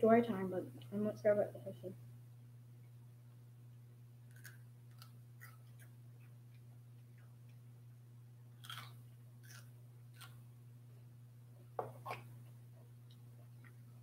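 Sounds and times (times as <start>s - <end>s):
steady low hum: 0.0s - 14.0s
person chewing food: 4.3s - 7.7s, 8.6s - 10.4s.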